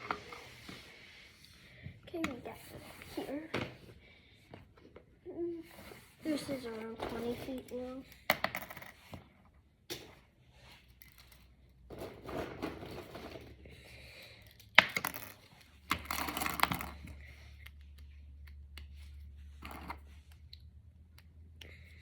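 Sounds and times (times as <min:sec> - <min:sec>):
plastic discs clicking and clattering: 0:11.0 - 0:13.8.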